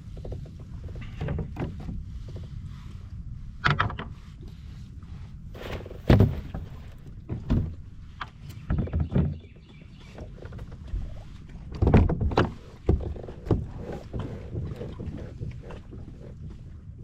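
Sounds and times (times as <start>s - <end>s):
hollow knocks on plastic kayak: 6.0s - 7.8s.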